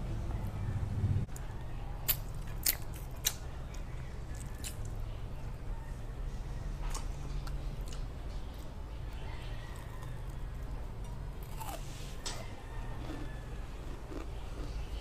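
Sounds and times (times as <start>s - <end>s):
steady low hum: 0.0s - 15.0s
person chewing crunchy food: 2.1s - 3.4s, 6.9s - 15.0s.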